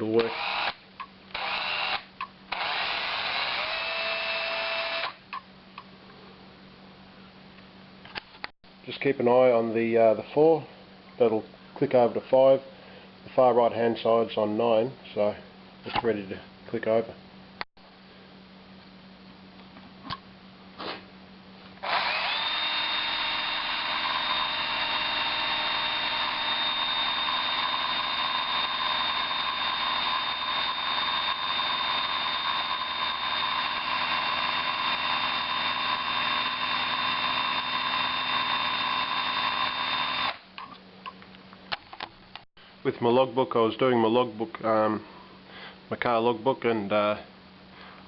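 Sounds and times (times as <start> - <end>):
cordless screw gun whining: 0.2 - 5.2, 21.8 - 40.4.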